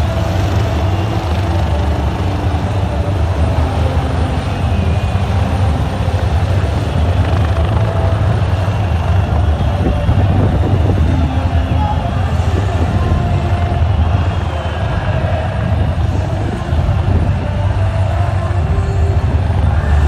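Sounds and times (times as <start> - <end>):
helicopter rotor and engine: 0.0 - 12.8.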